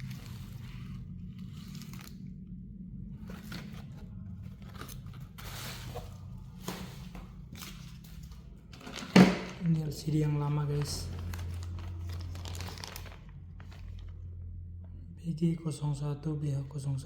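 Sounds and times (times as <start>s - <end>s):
steady low hum: 0.0s - 17.0s
packaging crinkling: 3.2s - 14.2s.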